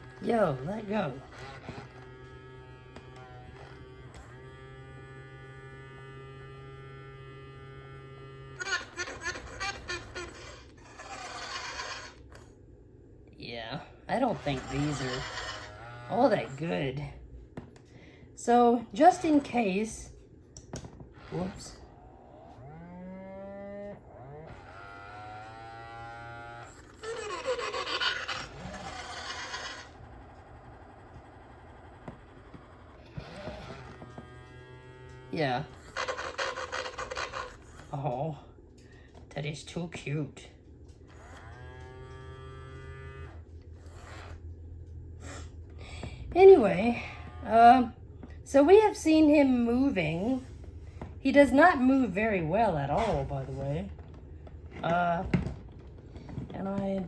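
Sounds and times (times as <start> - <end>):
toy electric motor buzzing: 0.0 - 12.5, 14.3 - 16.9, 21.2 - 38.1, 41.0 - 44.5, 46.5 - 48.0
toy dinosaur low moaning calls: 8.6 - 12.2, 14.4 - 16.0, 26.5 - 34.0, 35.8 - 37.8
toy dinosaur rasping call: 8.6 - 12.2, 14.4 - 16.3, 26.5 - 30.2, 35.8 - 37.7.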